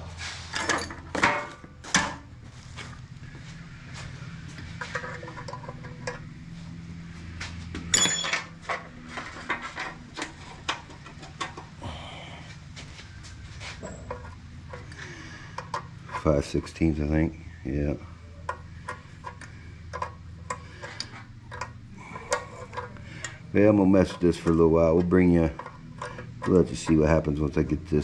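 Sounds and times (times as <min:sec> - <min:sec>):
steady low hum: 0:00.0 - 0:28.0
tools and metal parts clinking: 0:00.5 - 0:02.2, 0:07.8 - 0:11.6
ringing metal clink: 0:07.9 - 0:08.6.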